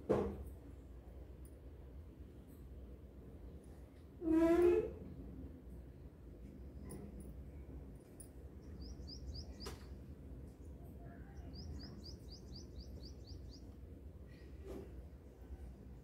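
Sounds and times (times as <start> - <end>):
faint bird chirping: 8.5 - 14.5.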